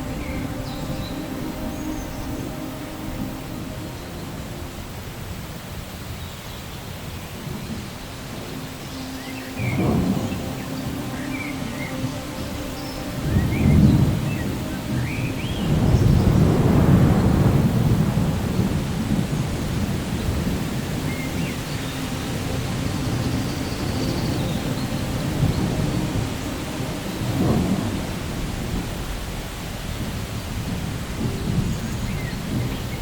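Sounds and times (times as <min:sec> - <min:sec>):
steady rain: 0:00.0 - 0:33.0
rolling thunder: 0:07.4 - 0:33.0.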